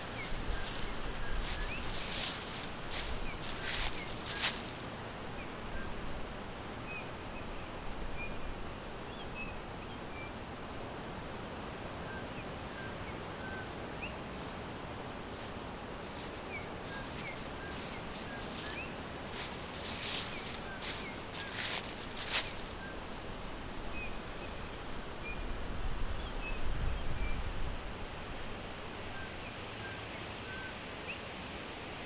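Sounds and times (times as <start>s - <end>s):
rustling: 0.0s - 5.2s, 14.3s - 23.2s
steady background hiss: 0.0s - 32.0s.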